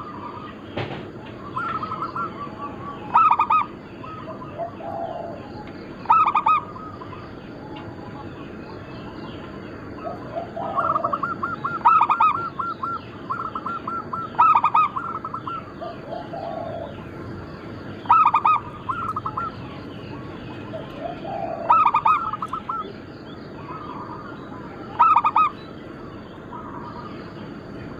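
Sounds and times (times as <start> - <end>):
doves cooing: 0.0 - 27.9
small birds chirping: 0.0 - 27.9.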